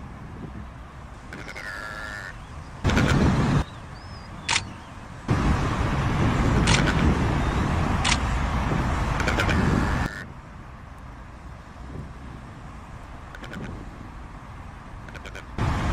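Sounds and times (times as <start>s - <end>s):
sharp clicks: 4.4s - 4.8s, 6.6s - 7.1s, 8.0s - 8.3s.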